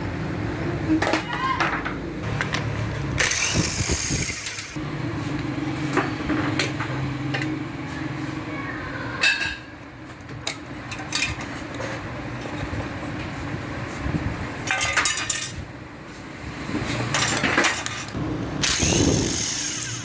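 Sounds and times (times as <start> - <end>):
power tool running: 2.2 - 4.8, 18.2 - 20.0.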